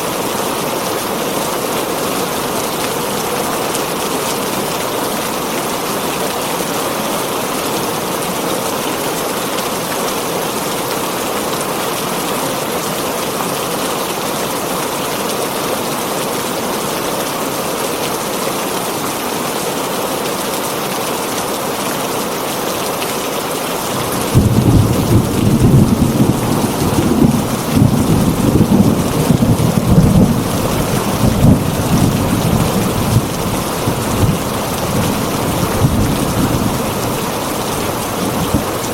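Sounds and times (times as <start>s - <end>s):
heavy rain on a tin roof: 0.0s - 38.9s
thunder rumbling: 24.0s - 37.1s.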